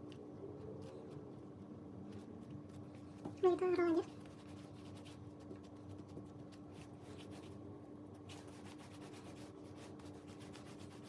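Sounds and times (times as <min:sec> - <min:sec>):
hands rubbing bread dough: 0:04.1 - 0:11.0.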